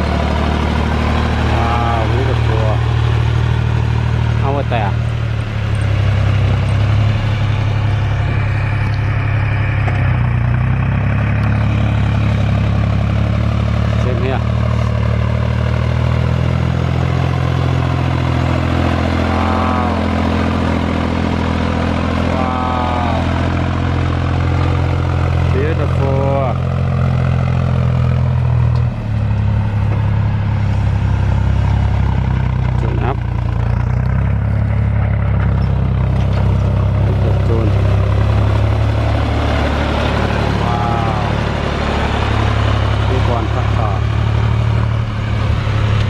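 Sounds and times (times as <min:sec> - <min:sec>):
tractor engine running: 0:00.0 - 0:46.0.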